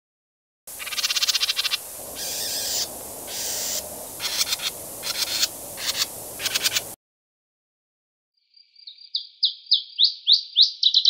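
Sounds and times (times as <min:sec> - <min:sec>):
steady hiss: 0:00.7 - 0:07.0
bird trilling: 0:00.8 - 0:07.0, 0:08.9 - 0:11.0.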